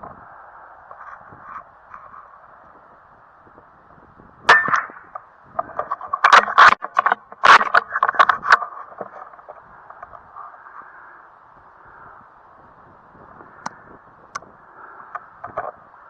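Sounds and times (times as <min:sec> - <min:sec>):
loud clicks and knocks: 0:04.5 - 0:09.1.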